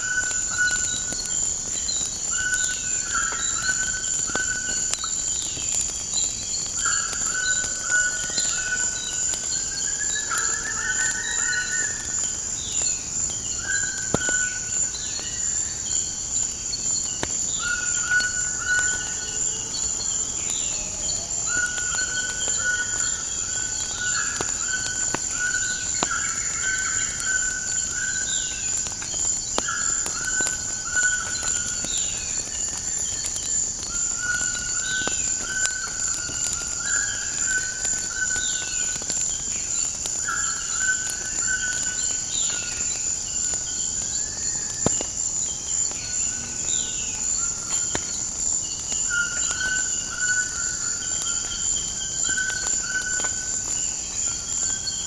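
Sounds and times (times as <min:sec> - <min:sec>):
wood fire crackles: 0:00.0 - 0:55.0
birds whistling and chirping: 0:16.8 - 0:43.0.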